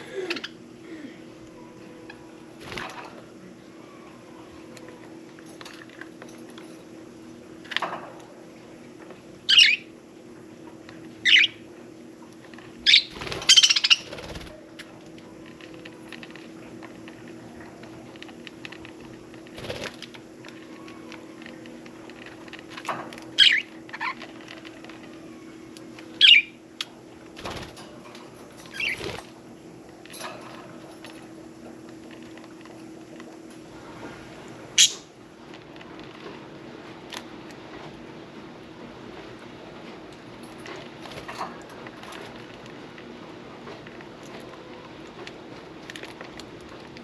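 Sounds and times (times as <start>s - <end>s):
faint steady hum: 0.0s - 47.0s
budgerigars chirping: 12.9s - 14.1s.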